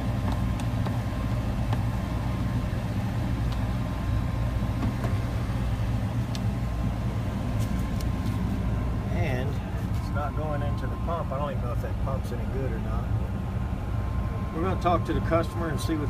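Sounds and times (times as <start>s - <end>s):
gas furnace humming: 0.0s - 16.0s.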